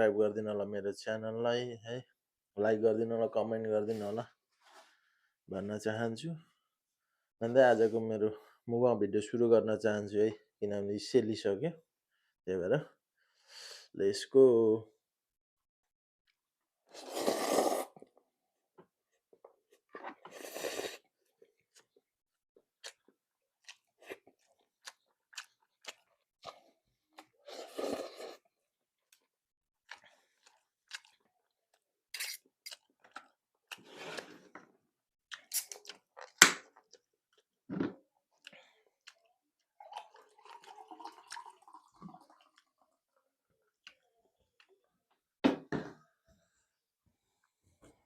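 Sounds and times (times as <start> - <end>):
slurping noodles: 16.9 - 18.1, 20.0 - 21.1, 27.4 - 28.5.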